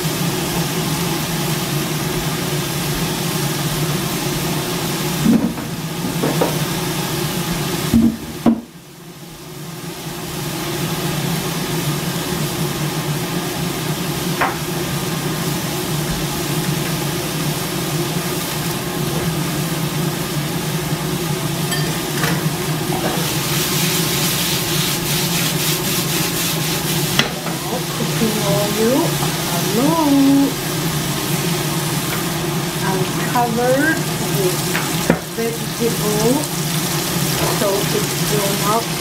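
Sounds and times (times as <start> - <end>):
food sizzling in a wok: 0.0 - 39.0
food rattling in a pan: 34.0 - 39.0.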